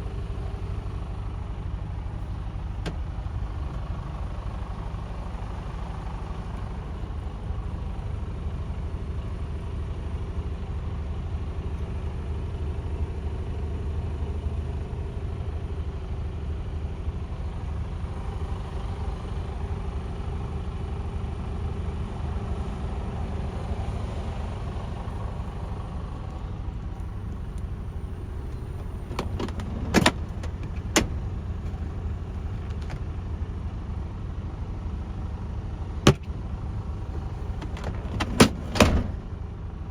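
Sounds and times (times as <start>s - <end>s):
truck diesel engine idling: 0.0s - 39.9s
sharp clicks and knocks: 27.2s - 31.8s, 36.1s - 36.3s, 37.1s - 39.1s.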